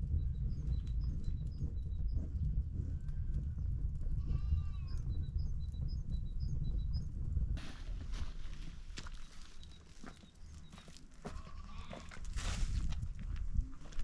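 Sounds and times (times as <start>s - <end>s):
small birds chirping: 0.0s - 7.4s, 8.6s - 12.0s
low rumble: 0.0s - 8.4s.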